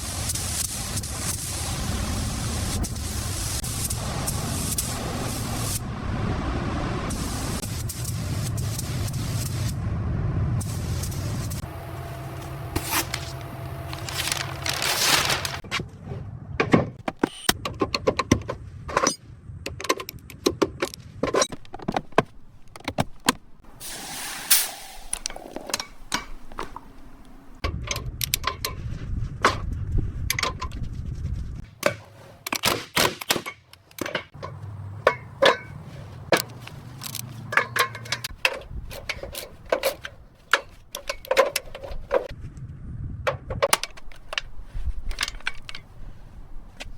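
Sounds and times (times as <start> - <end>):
short hisses: 23.7 - 26.5
metal tools clinking on car parts: 34.0 - 42.3.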